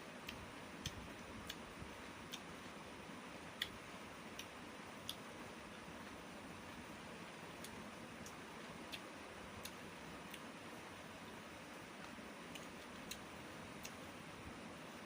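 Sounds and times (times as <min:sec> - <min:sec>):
quiet room hiss: 0:00.0 - 0:15.0
chewing clicks: 0:00.2 - 0:02.8, 0:03.5 - 0:05.2, 0:07.6 - 0:10.5, 0:12.0 - 0:14.1.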